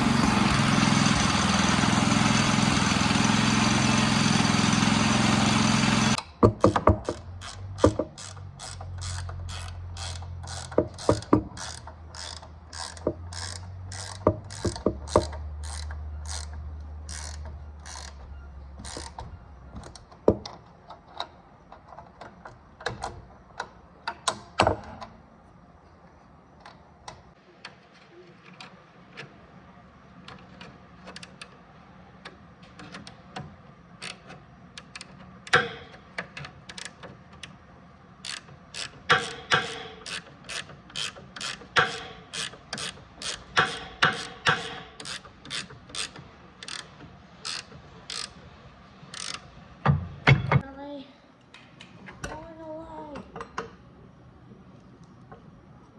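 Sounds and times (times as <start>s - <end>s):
ratchet wrench clicking: 6.1s - 18.2s, 18.8s - 19.2s, 34.0s - 37.6s, 38.2s - 48.4s, 49.1s - 49.5s.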